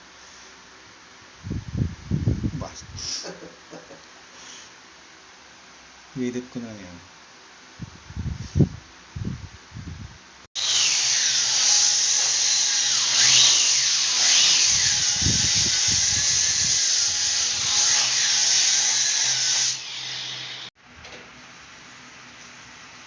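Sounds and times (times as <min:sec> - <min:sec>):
grinder whining under load: 0:10.6 - 0:20.7.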